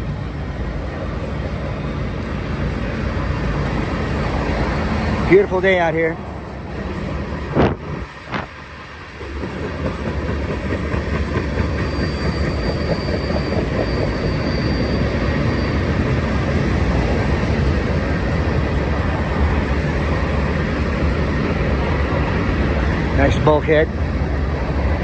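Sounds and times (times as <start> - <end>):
train wheels rumbling on rail: 0.0 - 25.0
high-pitched squeal: 11.1 - 16.6.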